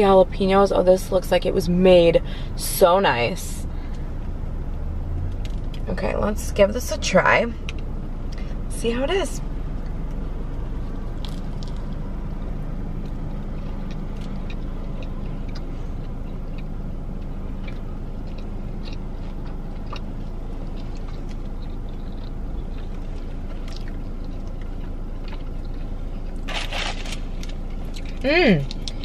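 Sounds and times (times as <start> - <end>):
low hum inside car: 0.0 - 29.0
person chewing crunchy food: 9.7 - 29.0.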